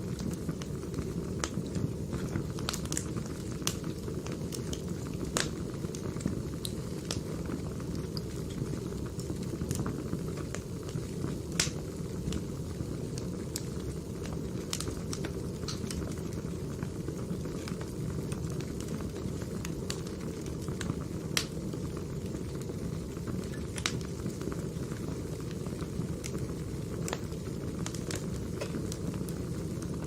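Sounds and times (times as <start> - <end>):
wood fire crackling: 0.0 - 30.0
sharp pops and snaps: 11.5 - 11.8, 14.7 - 16.0, 27.9 - 29.0.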